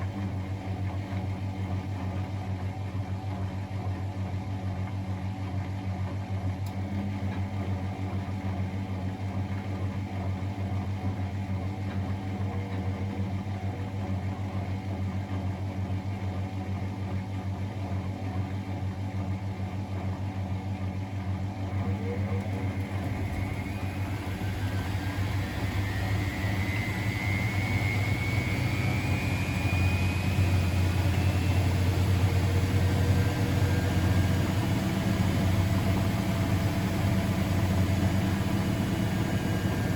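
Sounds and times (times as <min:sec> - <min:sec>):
washing machine motor hum: 0:00.0 - 0:04.8, 0:05.4 - 0:39.9
rising motor whine: 0:11.9 - 0:14.8, 0:21.7 - 0:39.9.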